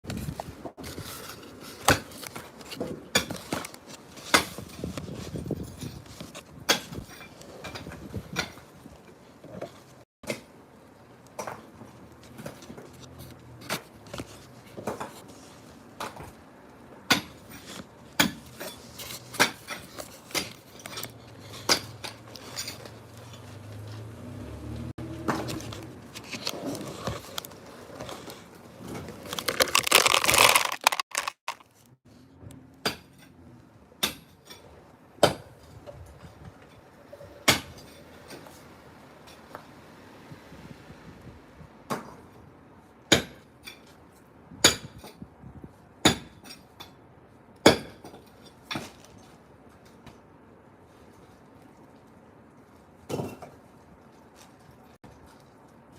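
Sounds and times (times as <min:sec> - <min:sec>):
concrete clattering and crumbling: 0:25.3 - 0:31.9.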